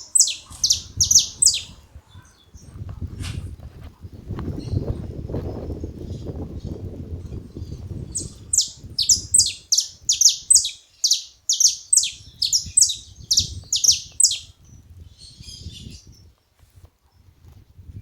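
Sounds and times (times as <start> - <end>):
finch calling sharp notes: 0.0 - 1.7, 8.2 - 14.5
faint bird twittering: 0.0 - 2.7, 7.6 - 16.2.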